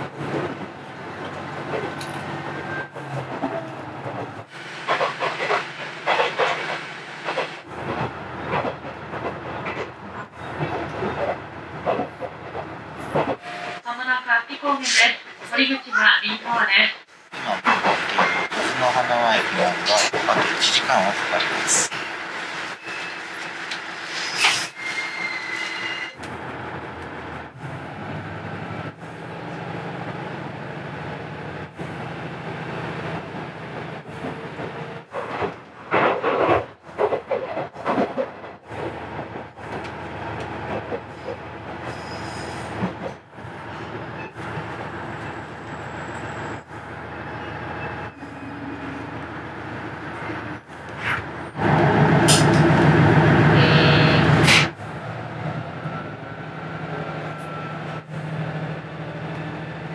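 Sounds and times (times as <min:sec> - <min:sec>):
diesel railcar engine: 0:00.0 - 0:59.9.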